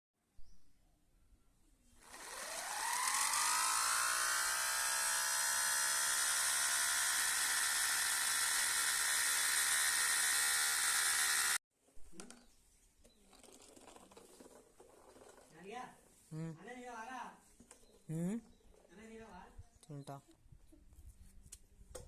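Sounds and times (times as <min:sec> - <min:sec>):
small electric motor whirring: 0:02.0 - 0:11.6.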